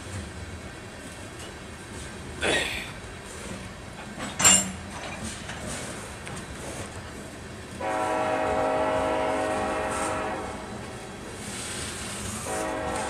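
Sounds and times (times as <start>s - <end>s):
freight train running: 0.0s - 13.0s
locomotive air horn blast: 7.8s - 10.9s, 12.3s - 13.0s.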